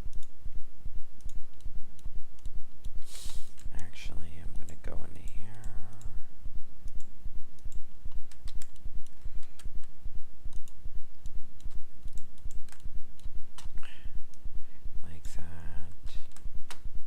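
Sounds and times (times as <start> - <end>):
computer mouse clicks: 0.0 - 0.4, 1.2 - 3.8, 4.7 - 6.2, 6.8 - 14.4, 15.9 - 16.9
throbbing low hum: 0.0 - 17.0
keyboard clicks: 4.7 - 6.2, 6.8 - 9.9, 10.5 - 13.8.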